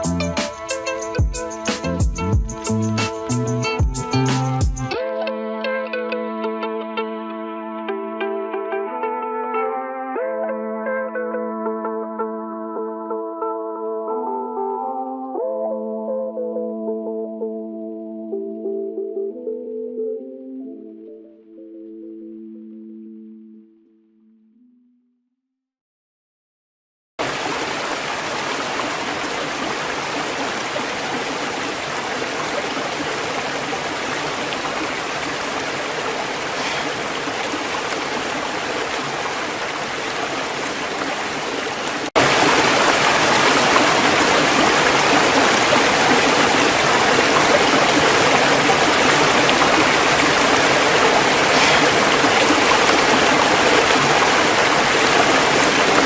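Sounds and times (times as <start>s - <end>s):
waterfall rushing: 27.2s - 56.0s.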